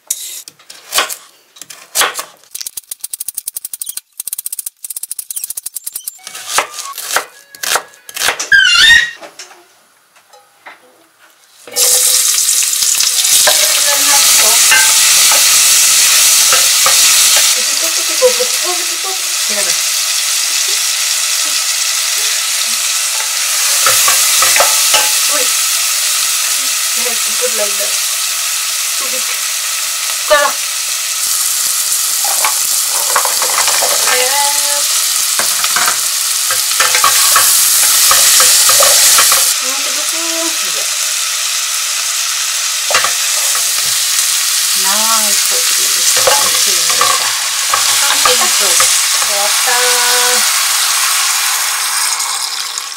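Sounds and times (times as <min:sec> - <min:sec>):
vegetables sizzling in a pot: 0:00.0 - 0:09.2, 0:11.5 - 0:52.9
wooden spoon stirring: 0:32.3 - 0:34.3, 0:46.1 - 0:49.4.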